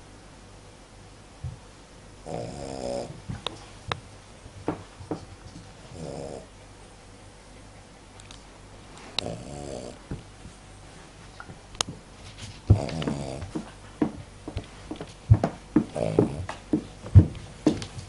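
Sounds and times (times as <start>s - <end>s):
dog snoring: 2.2s - 3.3s, 5.9s - 6.5s, 9.1s - 10.2s, 12.7s - 13.7s, 15.8s - 16.6s.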